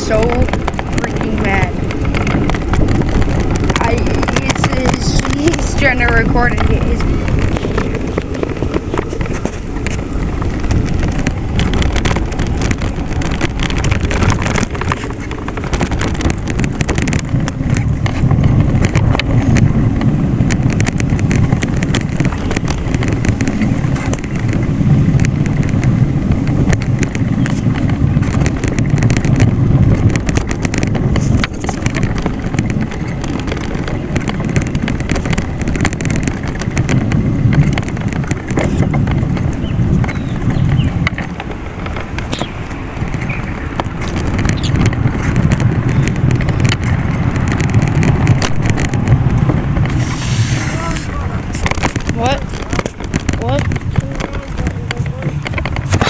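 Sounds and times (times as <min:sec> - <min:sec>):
road noise: 0:00.0 - 0:56.0
wind buffeting microphone: 0:00.0 - 0:56.0.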